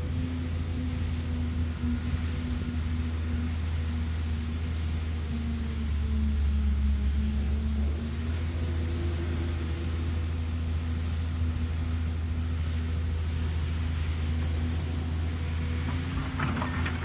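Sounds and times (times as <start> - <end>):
diesel engine humming: 0.0 - 17.0
metal clanks: 15.8 - 17.0.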